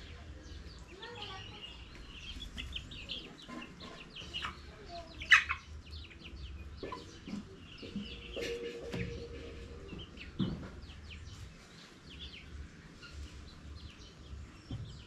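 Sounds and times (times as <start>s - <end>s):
chickens clucking: 0.6s - 15.0s.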